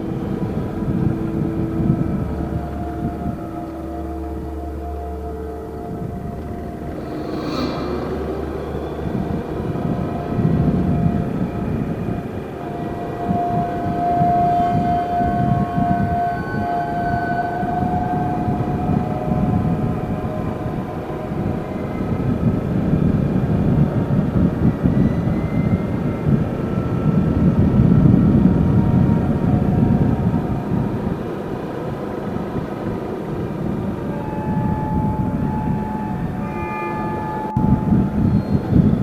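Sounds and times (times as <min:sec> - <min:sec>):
steady whine: 0:00.0 - 0:24.1
wind buffeting microphone: 0:00.0 - 0:39.0.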